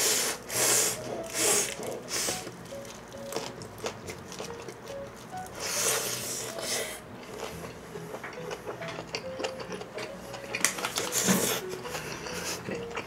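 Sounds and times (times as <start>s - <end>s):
wet chewing clicks: 7.2s - 11.3s.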